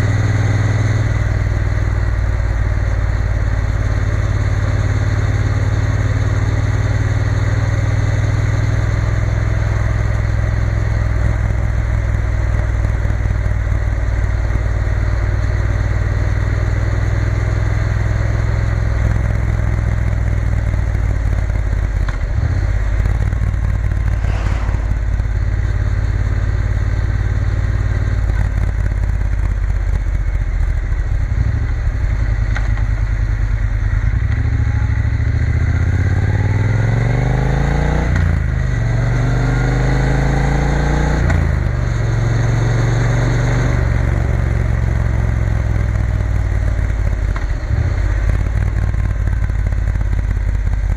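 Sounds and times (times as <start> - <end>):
motorcycle engine running: 0.0 - 50.9
brief rush of sound: 23.8 - 26.2.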